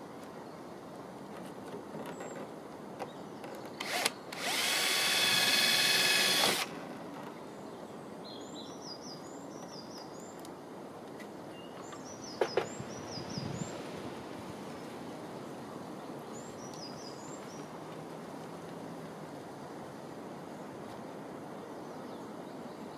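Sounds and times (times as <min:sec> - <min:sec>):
power drill whining: 0:03.8 - 0:06.7.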